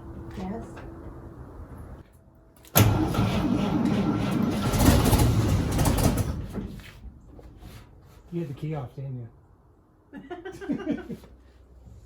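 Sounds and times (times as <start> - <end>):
truck engine cranking: 2.6 - 6.8.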